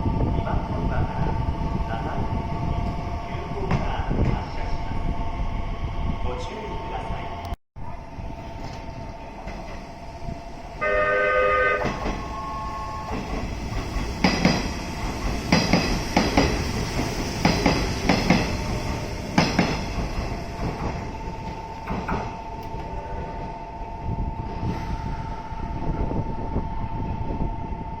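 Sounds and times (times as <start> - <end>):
train rumble: 0.0 - 28.0
train horn blast: 10.8 - 13.4
train wheels clacking: 11.7 - 22.8.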